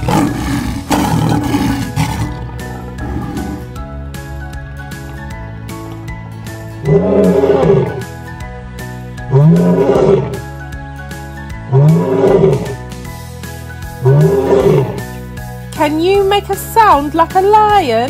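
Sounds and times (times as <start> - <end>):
lion roaring: 0.0 - 3.8, 6.8 - 8.1, 9.2 - 10.5, 11.6 - 12.9, 14.0 - 15.1
background music: 0.0 - 18.0.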